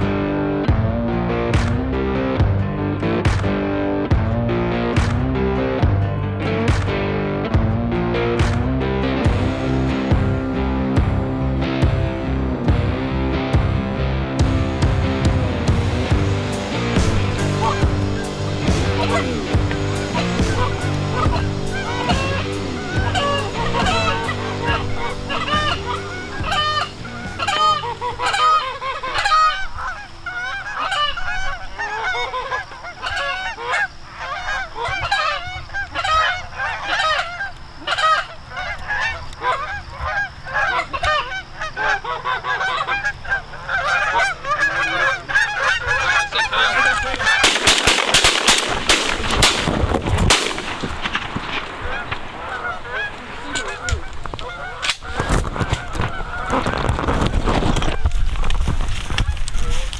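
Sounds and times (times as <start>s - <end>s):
loud rough rushing noise: 15.4s - 28.4s
geese honking: 15.6s - 59.9s.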